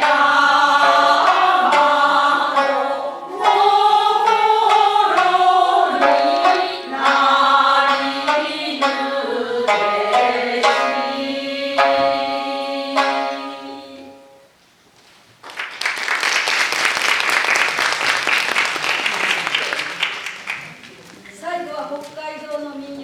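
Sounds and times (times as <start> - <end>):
person singing folk song: 0.0 - 14.1
plucked shamisen: 0.0 - 14.5.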